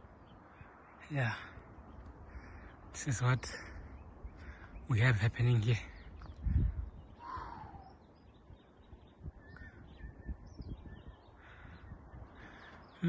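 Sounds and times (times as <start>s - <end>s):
bird caw-like call: 2.2s - 2.8s, 7.2s - 8.0s, 11.4s - 13.0s.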